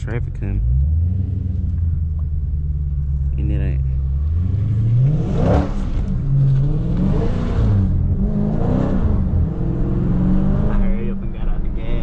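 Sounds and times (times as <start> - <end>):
car engine revving hard: 4.3 - 12.0.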